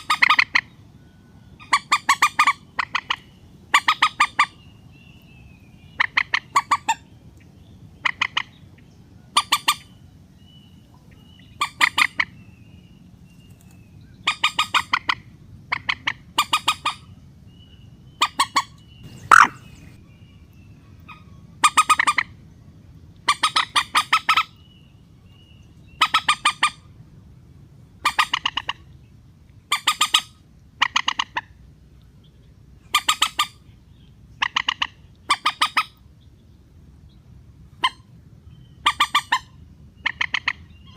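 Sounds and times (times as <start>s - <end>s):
rail bird harsh clucking calls: 0.0s - 0.7s, 1.6s - 4.6s, 5.9s - 7.0s, 8.0s - 8.6s, 9.4s - 9.9s, 11.6s - 12.3s, 14.2s - 17.1s, 18.2s - 20.0s, 21.1s - 22.3s, 23.3s - 24.6s, 25.9s - 26.8s, 28.0s - 28.9s, 29.7s - 31.5s, 32.9s - 33.6s, 34.4s - 36.0s, 38.8s - 40.9s
steady low hiss: 15.2s - 21.6s.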